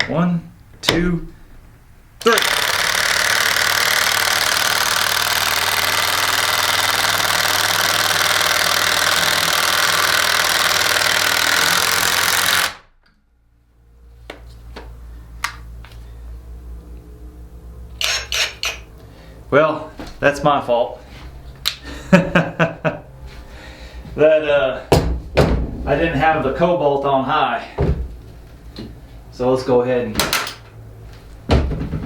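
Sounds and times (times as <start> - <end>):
impact drivers hammering fasteners: 2.2 - 12.9, 18.0 - 18.8, 30.2 - 30.7
low hum: 15.0 - 19.5.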